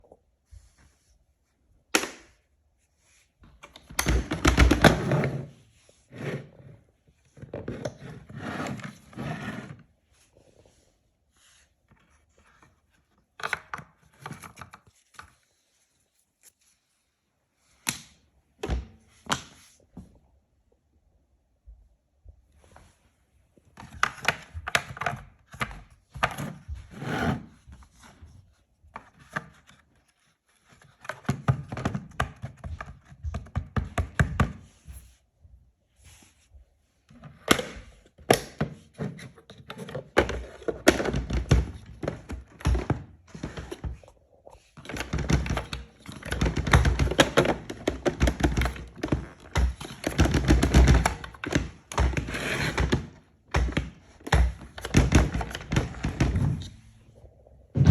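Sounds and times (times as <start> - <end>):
plastic parts clicking and knocking: 37.1 - 44.1, 44.8 - 56.9.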